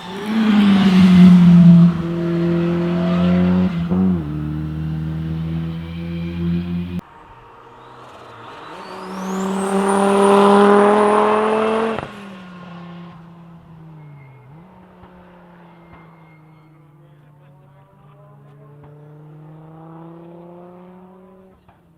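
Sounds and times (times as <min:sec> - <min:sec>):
high engine whine: 0:00.0 - 0:07.0
rally car engine passing: 0:00.0 - 0:07.0, 0:08.5 - 0:16.2.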